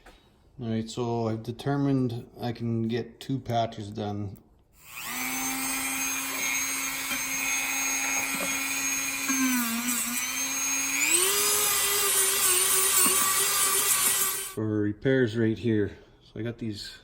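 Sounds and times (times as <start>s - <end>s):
rotary grinding tool whining: 4.8s - 14.6s.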